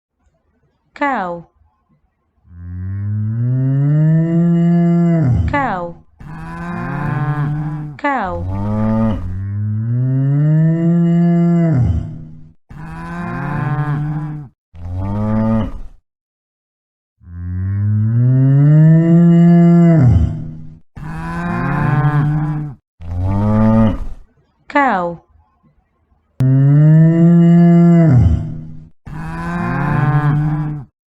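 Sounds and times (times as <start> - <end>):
cows mooing: 2.5 - 15.7, 21.0 - 24.2, 26.4 - 30.9.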